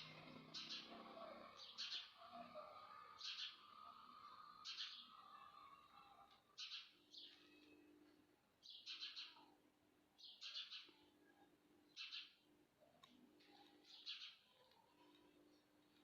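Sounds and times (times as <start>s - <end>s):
low steady hum: 0.0s - 16.0s
faint bird chirps: 8.6s - 9.6s, 10.2s - 15.4s.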